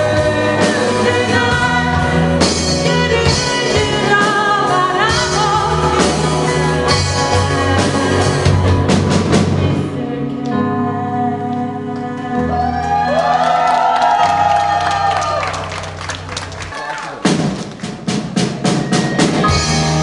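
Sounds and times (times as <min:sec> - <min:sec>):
drum kit beats: 0:00.0 - 0:10.5, 0:12.6 - 0:20.0
person singing: 0:00.0 - 0:15.1
live band playing: 0:00.0 - 0:20.0.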